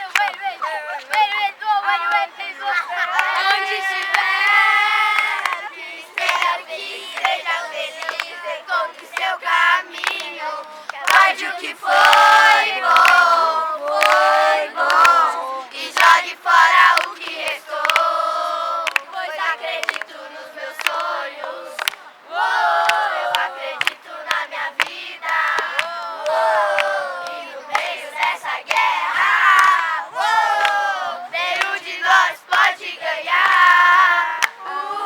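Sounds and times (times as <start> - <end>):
hand claps: 0.0 - 1.3, 5.1 - 6.6, 8.0 - 8.4, 9.9 - 11.3, 11.9 - 16.2, 16.8 - 18.2, 18.8 - 19.1, 19.8 - 20.1, 20.8 - 22.0, 22.8 - 29.8, 30.5 - 30.8, 31.5 - 31.8, 34.4 - 34.6
children shouting: 0.0 - 8.6
children chanting and singing: 0.0 - 35.0.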